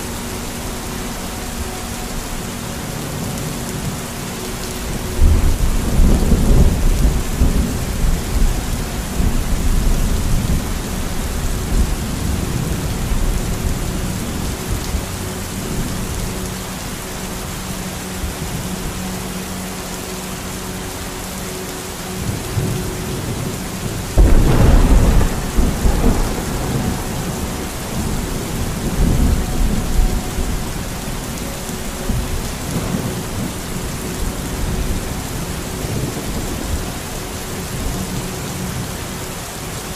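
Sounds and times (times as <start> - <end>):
steady rain: 0.0 - 39.9
thunder rolling: 24.2 - 35.0.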